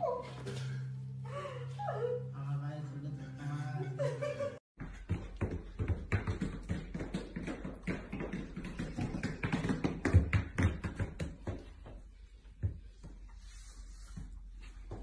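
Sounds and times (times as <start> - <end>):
booted dog paws tapping on hard floor: 4.8 - 12.0.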